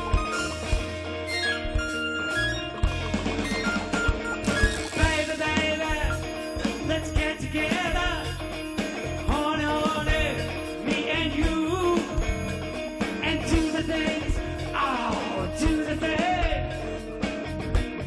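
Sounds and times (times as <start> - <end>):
rock band playing: 0.0 - 18.0
lead vocal singing: 4.5 - 17.1.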